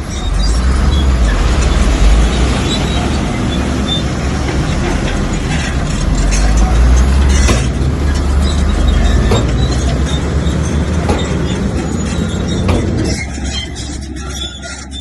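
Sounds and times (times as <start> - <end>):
bulldozer diesel engine: 0.0 - 15.0
steel tracks squealing and clanking: 0.0 - 15.0.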